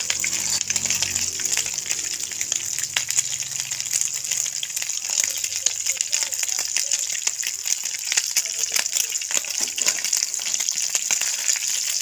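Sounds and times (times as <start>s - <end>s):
omelette sizzling with crackling pops: 0.0s - 12.0s.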